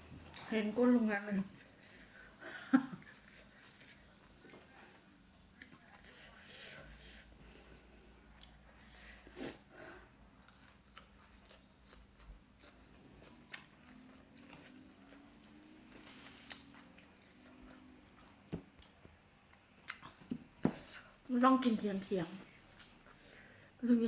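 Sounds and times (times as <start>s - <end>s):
chewing and crunching: 3.0s - 6.4s, 10.3s - 20.3s, 22.5s - 23.2s.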